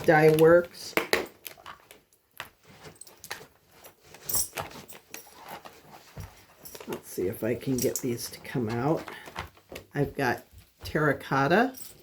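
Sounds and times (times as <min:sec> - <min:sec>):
dog collar tags jingling: 0:02.8 - 0:08.4, 0:11.6 - 0:12.0.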